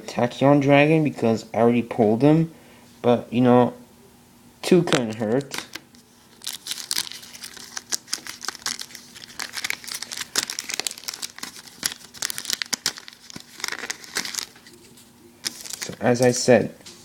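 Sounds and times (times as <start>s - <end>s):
foil wrapper tearing and crinkling: 5.1s - 16.4s.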